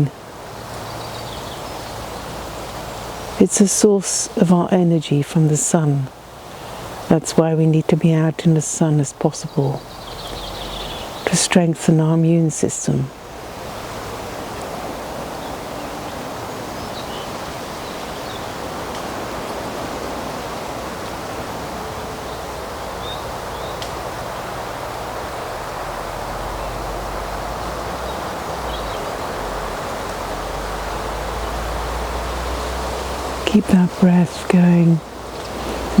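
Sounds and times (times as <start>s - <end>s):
woodland ambience rushing: 0.0s - 36.0s
faint bird chirps: 9.4s - 11.5s.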